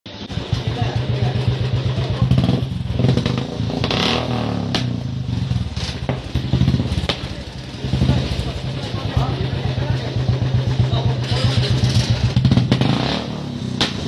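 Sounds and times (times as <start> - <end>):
motorcycle engine running: 0.1 - 14.0
sharp exhaust pops: 2.2 - 8.4, 11.3 - 14.0.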